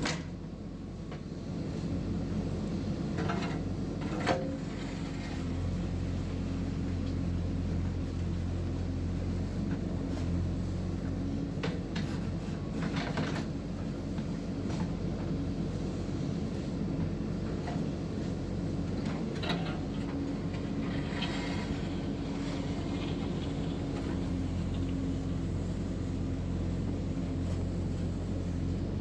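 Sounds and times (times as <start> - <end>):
diesel engine running: 0.8 - 29.0.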